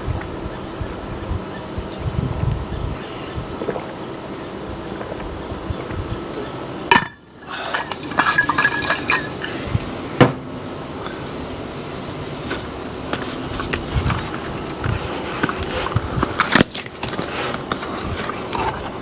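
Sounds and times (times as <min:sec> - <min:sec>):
steady background noise: 0:00.0 - 0:19.0
small objects clinking and rattling: 0:06.9 - 0:09.5.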